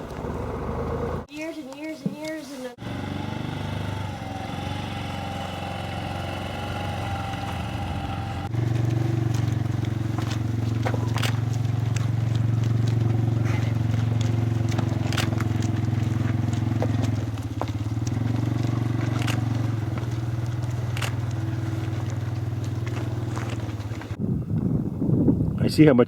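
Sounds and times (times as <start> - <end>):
machine droning: 2.8 - 24.2
sharp clicks and crackles: 10.2 - 13.1, 13.9 - 24.2.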